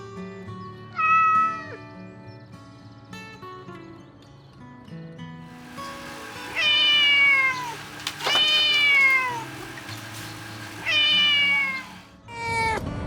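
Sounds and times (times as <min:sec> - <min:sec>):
kitten meowing: 0:06.5 - 0:09.6, 0:10.7 - 0:12.0.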